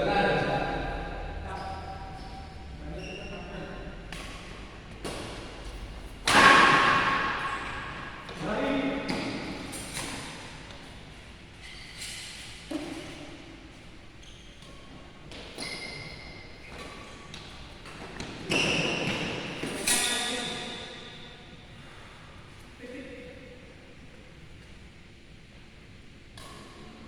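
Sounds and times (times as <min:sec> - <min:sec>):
badminton racket hits echoing: 0:04.0 - 0:08.4.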